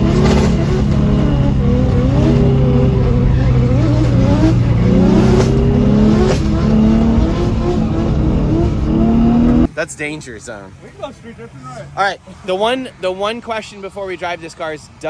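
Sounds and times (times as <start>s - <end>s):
low engine drone: 0.0s - 9.7s
car engines revving: 0.0s - 15.0s.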